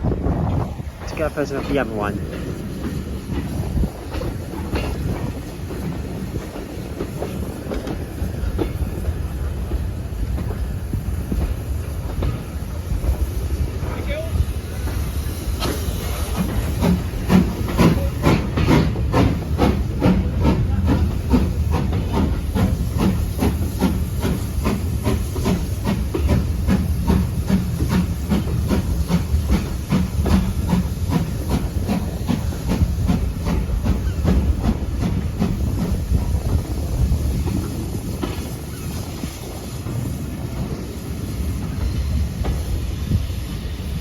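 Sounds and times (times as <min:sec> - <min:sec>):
steam locomotive chuffing: 0:00.0 - 0:44.0
steam hissing: 0:00.4 - 0:44.0.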